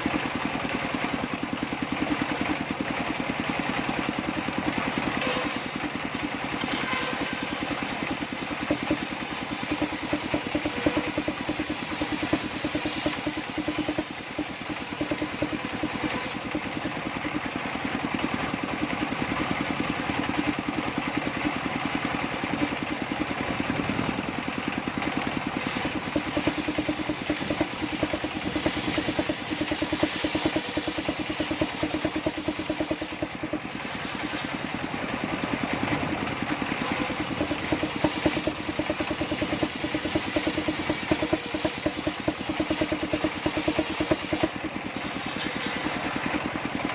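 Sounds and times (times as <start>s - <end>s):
engine pulsing: 0.0s - 46.9s
circular saw cutting wood: 5.2s - 17.0s, 25.5s - 34.8s, 36.8s - 46.8s.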